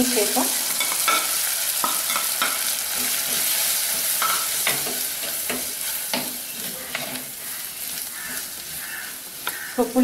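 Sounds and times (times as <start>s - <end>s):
onions sizzling in oil: 0.0s - 10.0s
spoon scraping and tapping pot: 0.8s - 7.2s.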